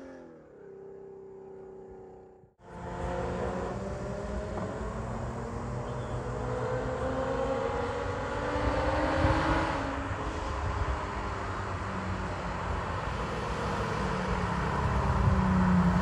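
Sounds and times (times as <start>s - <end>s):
car engine revving: 2.6s - 10.5s.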